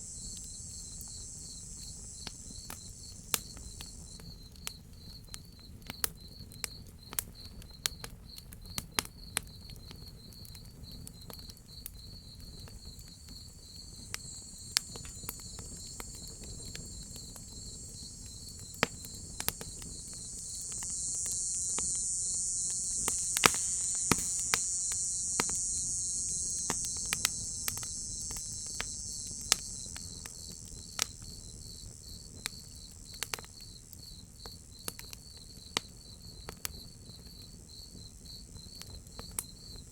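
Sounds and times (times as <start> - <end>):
wood fire crackling: 0.0 - 4.8, 13.2 - 31.5
cicada buzz: 0.0 - 5.2, 12.8 - 36.4
crickets chirping: 0.0 - 8.0, 10.0 - 39.9.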